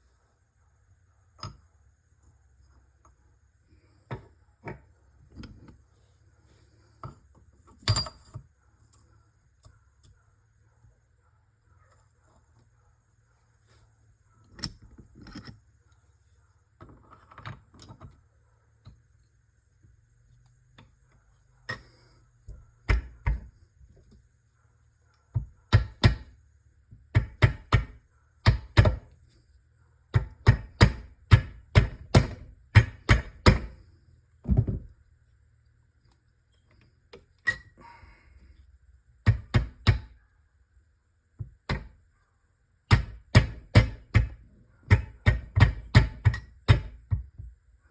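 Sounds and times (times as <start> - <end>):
knocks and clunks on metal parts: 30.1 - 33.8, 34.4 - 35.0, 41.4 - 41.9, 42.9 - 47.6.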